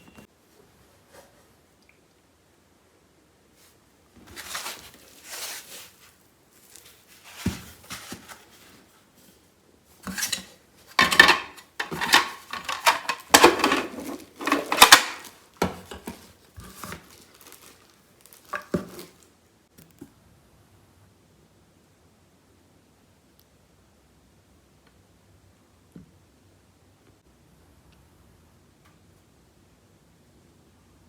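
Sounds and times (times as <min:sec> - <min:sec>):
hard plastic parts clacking: 0:10.1 - 0:17.0
packaging crinkling: 0:11.0 - 0:19.3.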